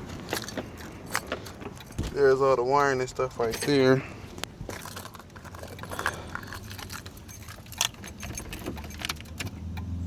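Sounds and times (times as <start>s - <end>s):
car keys jangling: 0.0s - 10.0s
key clicking in ignition: 5.0s - 9.9s.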